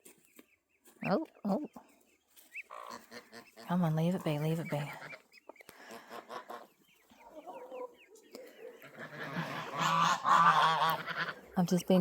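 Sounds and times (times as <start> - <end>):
hens clucking: 0.0 - 12.0
geese honking: 2.6 - 12.0.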